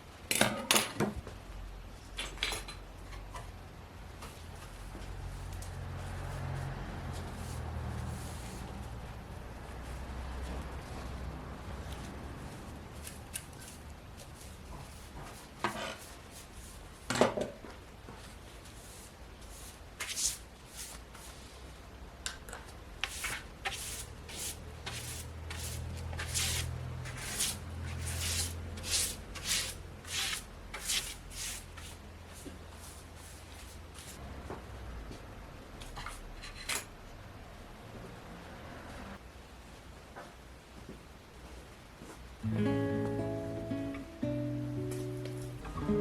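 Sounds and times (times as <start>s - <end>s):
fabric rustling: 23.1s - 34.2s.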